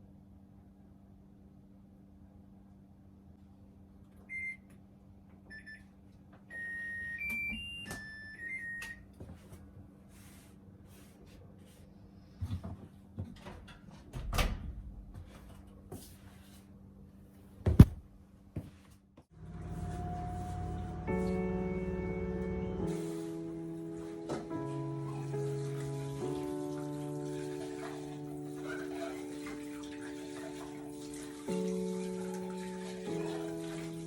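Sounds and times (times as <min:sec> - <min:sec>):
appliance beeps: 0:04.2 - 0:04.7, 0:05.5 - 0:09.1.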